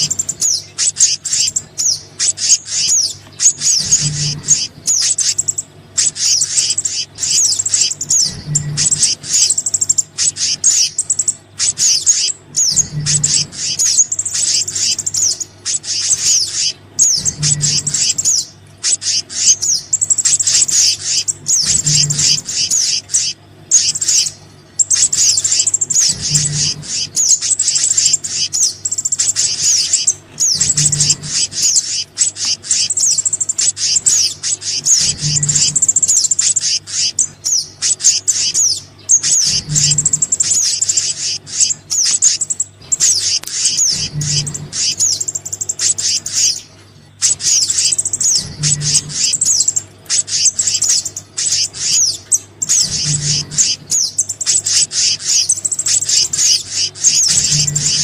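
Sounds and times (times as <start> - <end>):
songbird chirps and whistles: 0.0 - 58.0.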